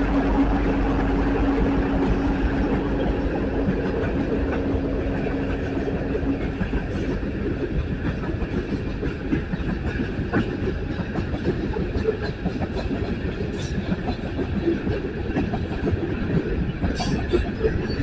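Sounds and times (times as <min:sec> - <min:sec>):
steady low hum: 0:00.0 - 0:09.2
freight train cars rumbling: 0:00.0 - 0:18.0.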